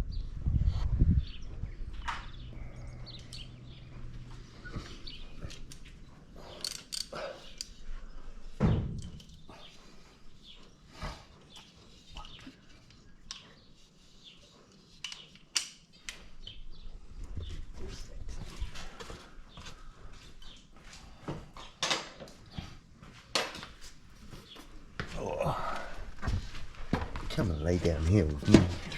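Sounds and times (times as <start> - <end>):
hand tools and metal parts clinking: 4.7 - 8.0, 8.9 - 9.8.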